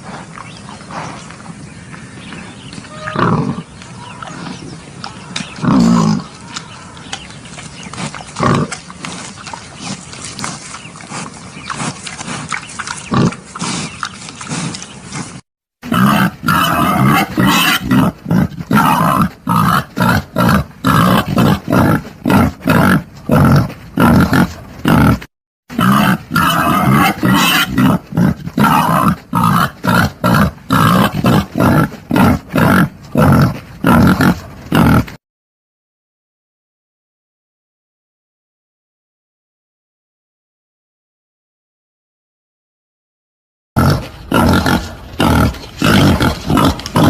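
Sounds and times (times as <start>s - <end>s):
wild boar grunting: 2.0s - 35.2s, 43.8s - 47.0s.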